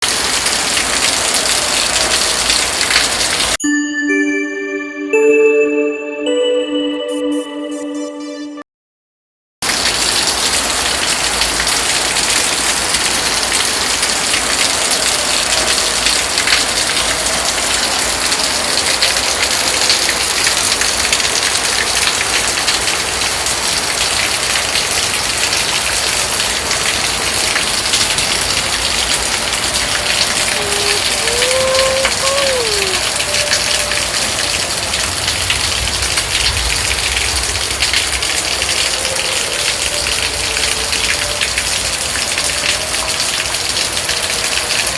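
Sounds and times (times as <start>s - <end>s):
heavy rain splashing: 0.0s - 3.6s, 9.6s - 44.9s
wavering tone: 3.6s - 8.6s.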